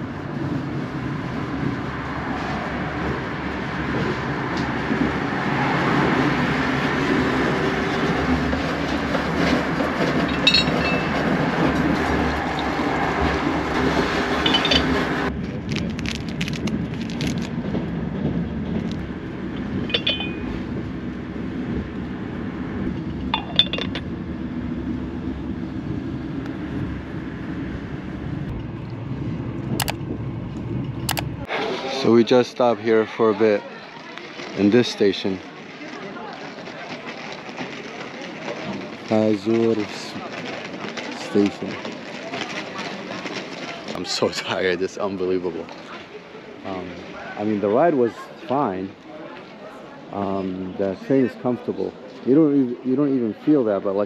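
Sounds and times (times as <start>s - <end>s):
train carriage rumble: 0.0s - 54.0s
porcelain teapot clinks: 19.9s - 20.5s, 23.4s - 24.0s.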